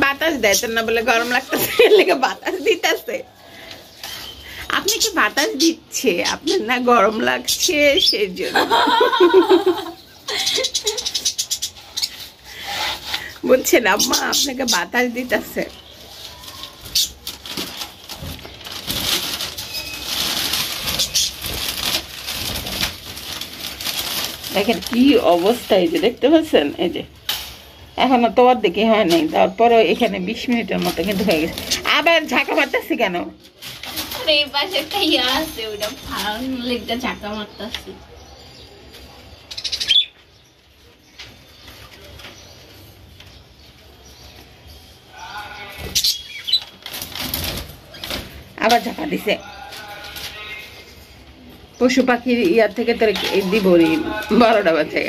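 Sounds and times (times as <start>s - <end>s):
budgies flapping wings: 16.5s - 25.5s.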